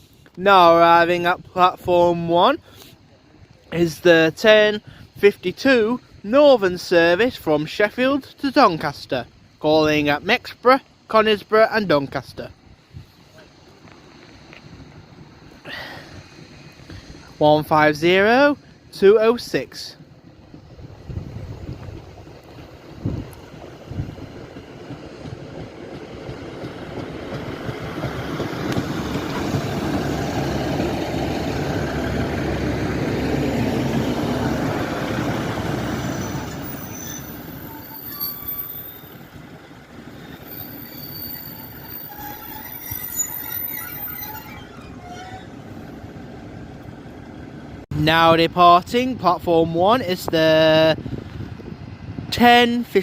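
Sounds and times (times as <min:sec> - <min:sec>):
train engine and wheels: 0:00.0 - 0:53.0
wheel and brake squeals: 0:35.8 - 0:39.3, 0:40.1 - 0:46.2.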